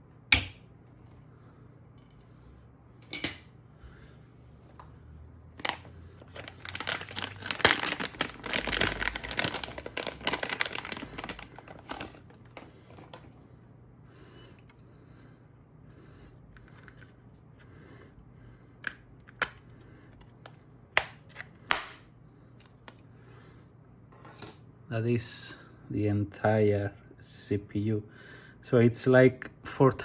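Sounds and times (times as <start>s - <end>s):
plastic packaging crinkling: 5.6s - 13.3s.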